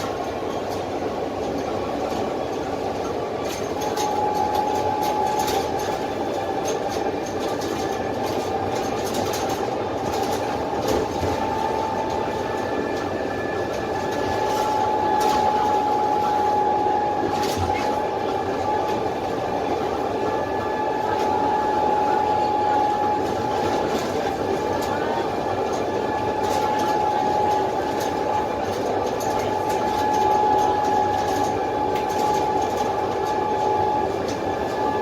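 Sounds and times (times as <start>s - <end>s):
bus diesel engine: 0.0s - 35.0s
high whine: 9.6s - 35.0s.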